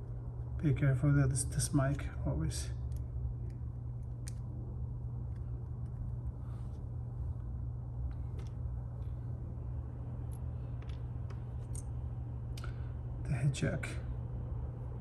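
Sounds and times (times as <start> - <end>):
low electrical hum: 0.0 - 15.0
clicks of small phone parts: 10.3 - 11.9.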